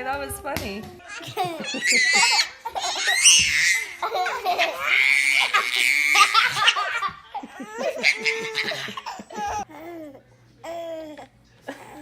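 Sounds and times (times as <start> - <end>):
baby laughing: 1.1 - 9.7
people laughing: 1.2 - 3.0, 3.9 - 9.6.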